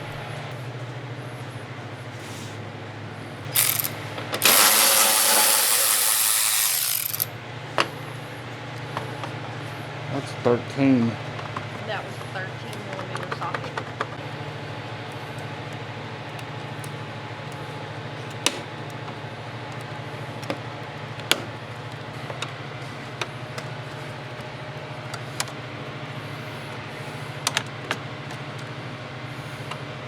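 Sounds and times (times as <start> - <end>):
steady low hum: 0.0 - 30.0
hand tools clicking and clinking: 3.5 - 7.3.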